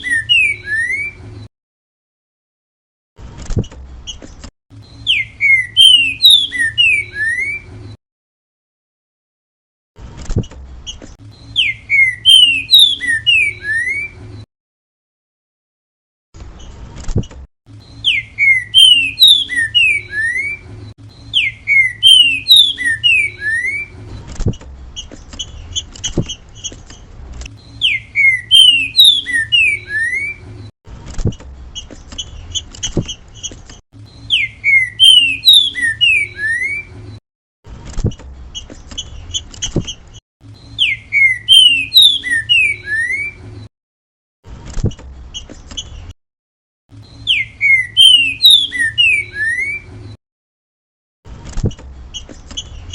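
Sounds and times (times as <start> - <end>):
bird whistling song phrases: 0.0 - 1.2, 4.8 - 7.7, 11.4 - 14.2, 17.8 - 24.0, 27.6 - 30.5, 34.1 - 36.9, 40.6 - 43.4, 47.0 - 49.9.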